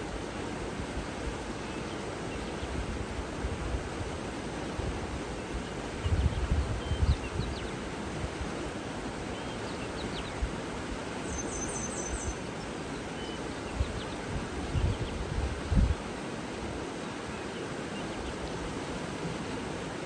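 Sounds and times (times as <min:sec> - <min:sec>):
water rushing: 0:00.0 - 0:06.0, 0:07.6 - 0:20.0
wind gusts on microphone: 0:05.9 - 0:08.7, 0:13.7 - 0:16.8
faint bird chirps: 0:11.2 - 0:12.5.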